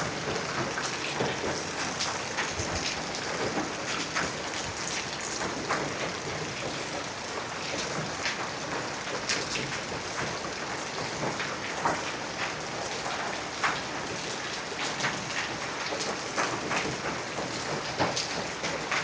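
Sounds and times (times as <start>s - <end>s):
raindrops striking rocks: 0.1s - 6.9s.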